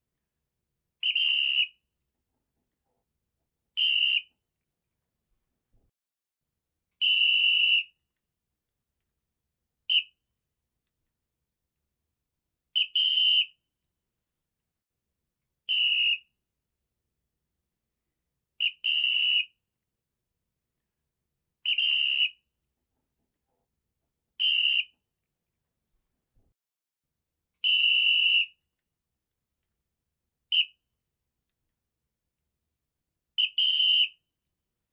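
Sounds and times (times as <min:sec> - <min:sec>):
high whistle-like squeak: 0:01.0 - 0:01.8, 0:03.8 - 0:04.4, 0:21.6 - 0:22.4, 0:24.4 - 0:25.0.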